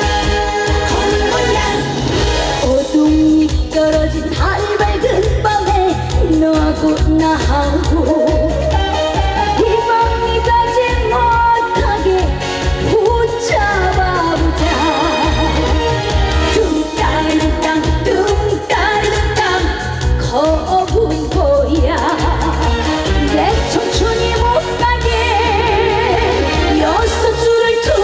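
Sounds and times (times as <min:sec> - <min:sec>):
band with pulsing bass beat: 0:00.0 - 0:28.0
woman singing with vibrato: 0:00.0 - 0:28.0.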